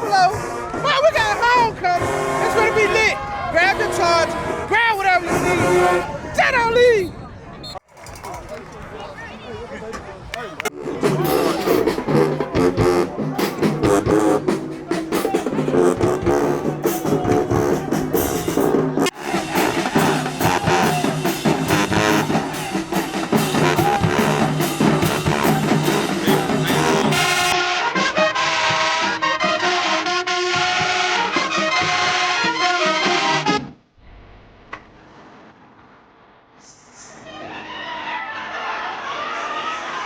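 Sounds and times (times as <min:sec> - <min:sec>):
music with brass and drums: 0:00.0 - 0:06.1, 0:10.7 - 0:33.8.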